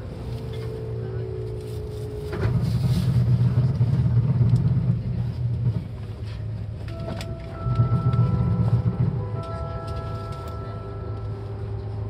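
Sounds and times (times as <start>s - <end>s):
train rumbling: 0.0s - 12.0s
faint steady tones: 6.2s - 12.0s.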